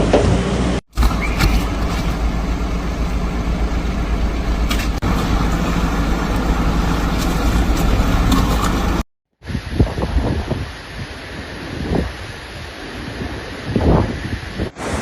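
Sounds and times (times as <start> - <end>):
vehicle engine rumbling: 0.0 - 9.1.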